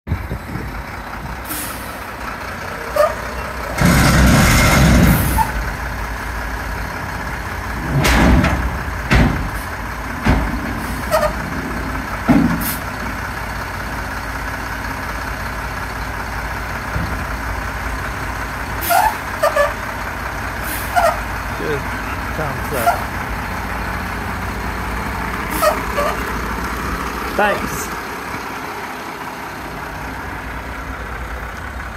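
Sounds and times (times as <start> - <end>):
dump truck engine running: 0.1 - 31.9
loud burst of noise: 3.7 - 5.8
sharp knocks: 8.0 - 9.6.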